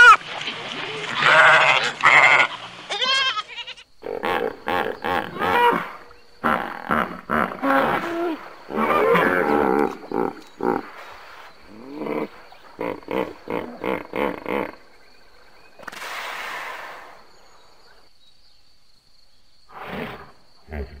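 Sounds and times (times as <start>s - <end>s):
hippopotamus grunting honks: 1.0s - 2.6s, 4.0s - 14.9s.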